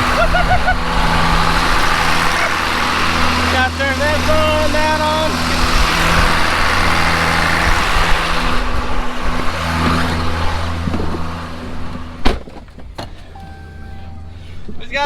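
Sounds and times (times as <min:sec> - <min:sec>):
pump engine running: 0:00.0 - 0:15.0
vehicle door slamming: 0:12.2 - 0:14.8.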